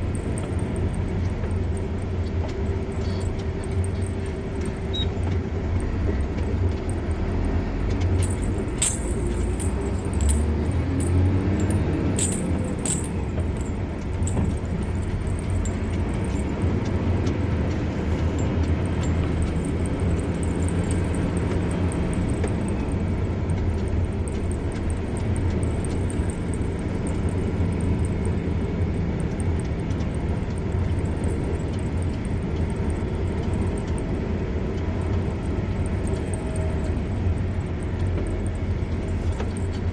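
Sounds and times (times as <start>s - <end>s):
car engine and tyres rumbling: 0.0s - 39.9s
sharp clicks or rattles: 7.9s - 16.6s, 18.6s - 34.2s.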